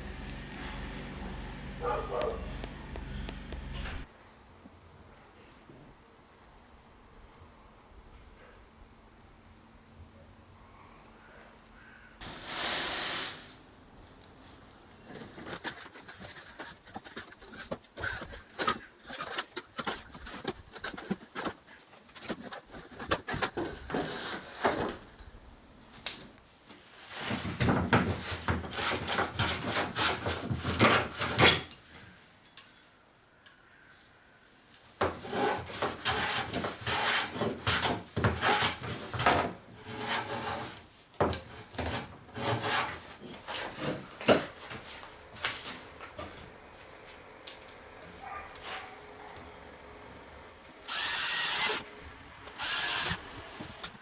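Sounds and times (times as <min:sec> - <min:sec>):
hand tool rasping on wood: 0:15.1 - 0:23.5, 0:35.2 - 0:40.8, 0:41.9 - 0:44.0.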